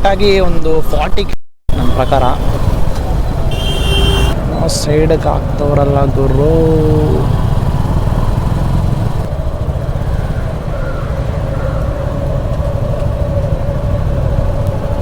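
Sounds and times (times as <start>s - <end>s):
motorcycle engine running: 3.4s - 4.6s, 5.4s - 15.0s
wind rumble on microphone: 7.2s - 15.0s.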